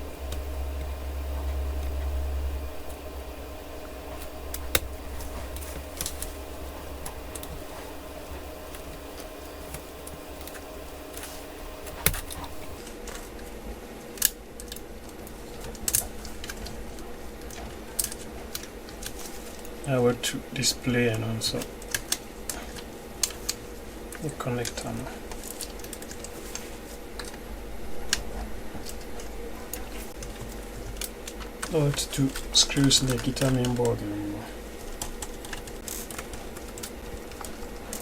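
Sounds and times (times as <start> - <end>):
tools clicking on laptop: 0.0 - 12.8
steady low hum: 0.0 - 12.9.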